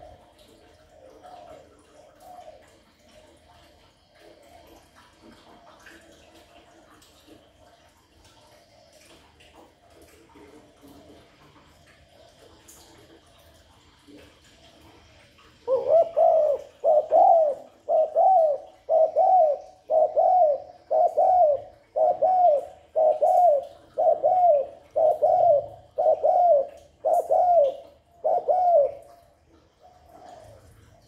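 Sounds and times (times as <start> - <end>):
dove cooing: 0.0 - 3.6, 15.6 - 30.8.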